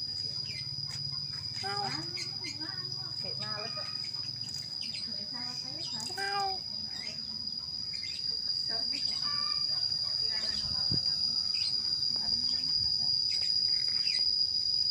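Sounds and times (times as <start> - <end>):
crickets trilling: 0.0 - 14.9.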